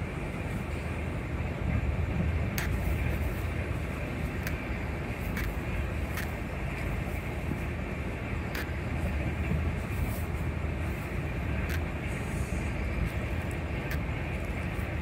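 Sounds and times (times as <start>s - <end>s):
train wheels rumbling on track: 0.0s - 15.0s
faint clicks: 2.5s - 2.8s, 4.4s - 4.7s, 8.5s - 8.8s.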